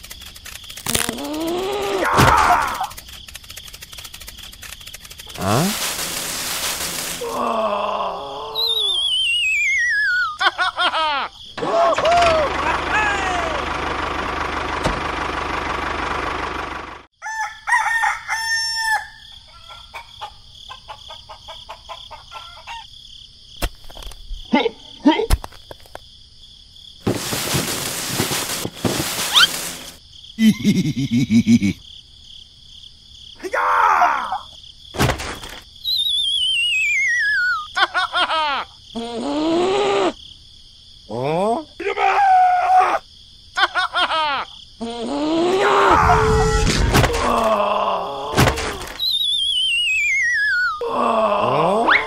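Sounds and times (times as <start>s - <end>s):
voice-like moan: 1.1s - 2.9s, 5.3s - 5.8s, 7.2s - 8.9s, 41.1s - 43.0s, 44.8s - 48.9s, 50.8s - 52.0s
springy falling chirps: 8.6s - 10.4s, 27.1s - 31.5s, 35.8s - 37.7s, 48.7s - 50.8s
rooster crowing: 17.2s - 20.3s
short pitched calls: 27.6s - 30.0s, 35.8s - 37.7s, 48.9s - 50.8s
warbling whistle sliding down: 35.9s - 37.5s.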